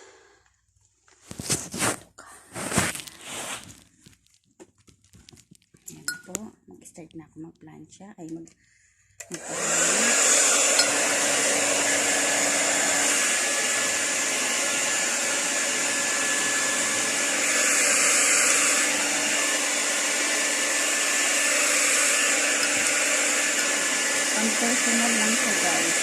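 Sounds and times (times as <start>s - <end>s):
hair dryer blowing with whine: 0.0s - 0.2s, 9.2s - 26.0s.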